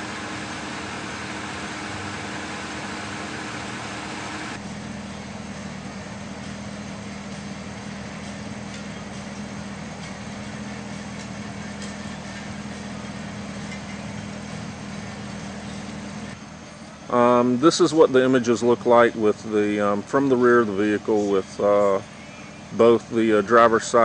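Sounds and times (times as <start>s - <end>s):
car engine idling: 0.0s - 4.6s.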